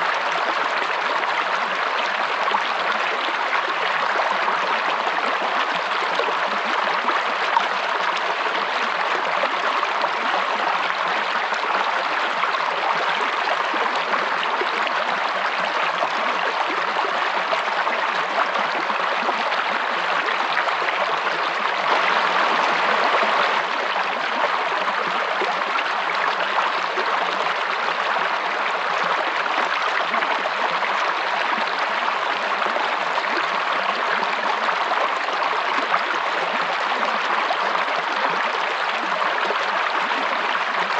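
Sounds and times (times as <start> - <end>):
stream water rushing: 21.8 - 24.0.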